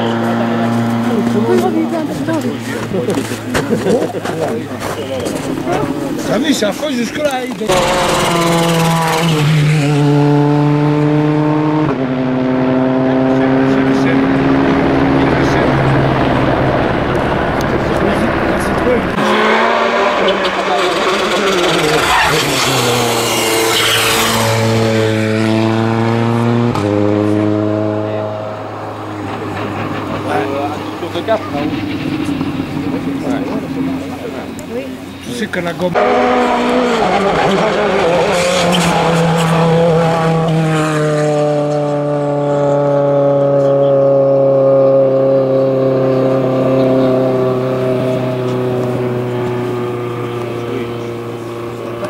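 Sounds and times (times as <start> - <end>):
turbocharged engine running hard: 0.0 - 52.0
sharp engine crack: 7.2 - 9.9.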